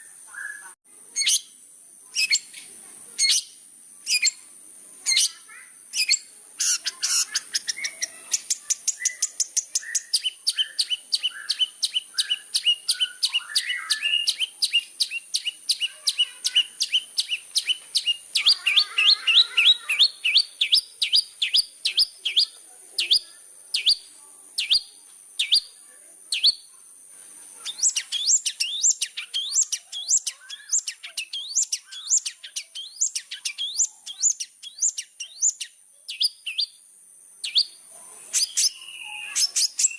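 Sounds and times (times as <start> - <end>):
shrike singing sharp chattering notes: 5.0 - 25.7, 27.6 - 36.7.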